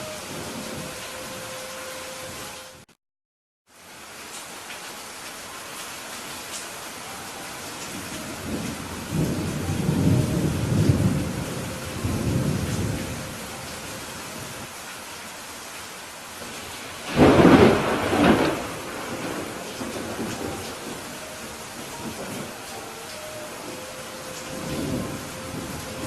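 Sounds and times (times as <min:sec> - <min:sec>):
steady rain: 0:00.0 - 0:02.9, 0:03.7 - 0:26.0
thunder rumbling: 0:07.8 - 0:14.7, 0:16.4 - 0:26.0
sharp thunder clap: 0:17.1 - 0:20.9.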